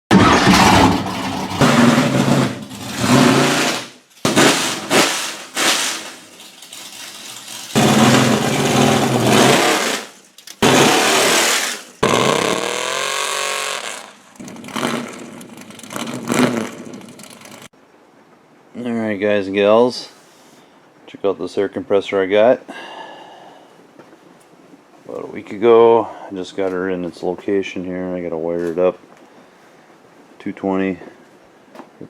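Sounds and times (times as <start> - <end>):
engine running and revving: 7.8 - 9.9, 10.6 - 11.4, 12.0 - 17.7.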